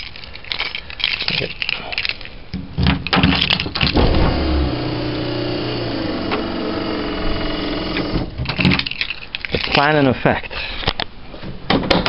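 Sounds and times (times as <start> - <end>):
motor running: 4.0 - 8.3.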